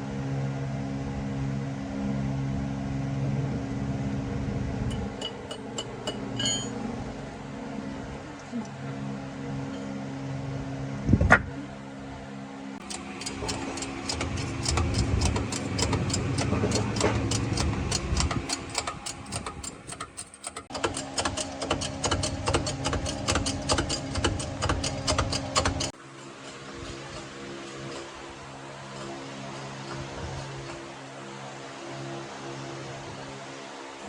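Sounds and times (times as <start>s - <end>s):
low steady hum: 0.0s - 18.6s
rhythmic mechanical clicking: 4.9s - 6.4s, 12.8s - 30.8s.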